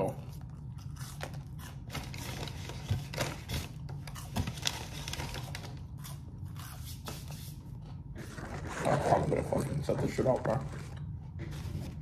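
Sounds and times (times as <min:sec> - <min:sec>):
chewing and crunching food: 0:00.0 - 0:06.8
steady low hum: 0:00.0 - 0:12.0.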